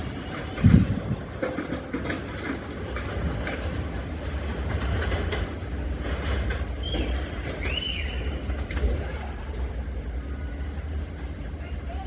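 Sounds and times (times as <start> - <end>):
wheels clicking over rail joints: 0.0 - 9.9
train rumbling on rails: 0.0 - 12.0.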